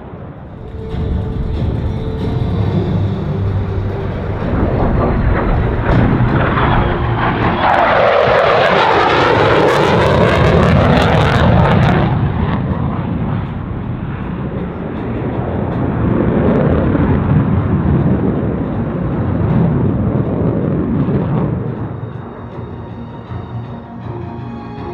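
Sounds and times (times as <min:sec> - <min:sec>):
jet engine passing: 0:00.2 - 0:23.5.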